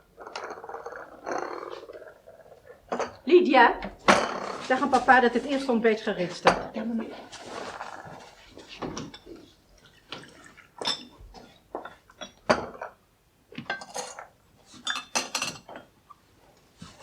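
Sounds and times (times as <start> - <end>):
crockery and cutlery clinking: 10.2 - 13.0, 13.6 - 16.0.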